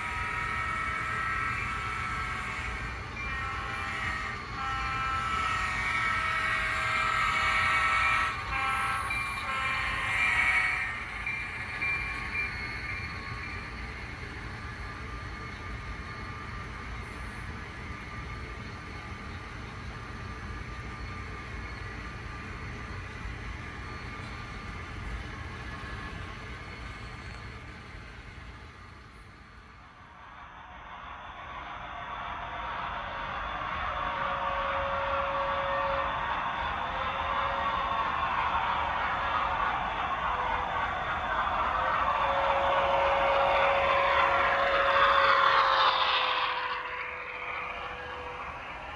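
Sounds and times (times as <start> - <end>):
model train running: 0.0 - 48.9
model train horn chord: 3.2 - 10.8.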